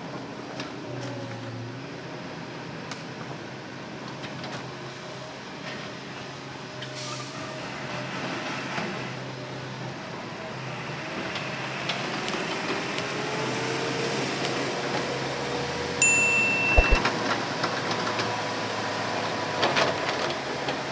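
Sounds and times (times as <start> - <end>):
short high electronic beep: 16.0 - 17.0.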